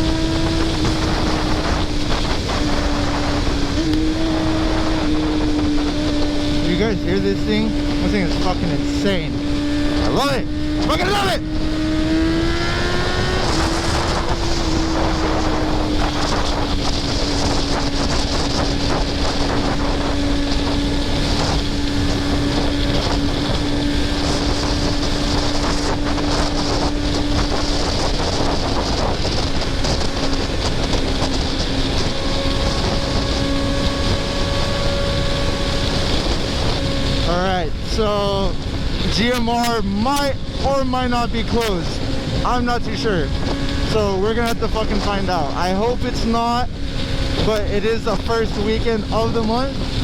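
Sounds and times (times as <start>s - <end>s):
motorcycle engine running: 0.0s - 50.0s
wind rushing over microphone: 0.0s - 50.0s.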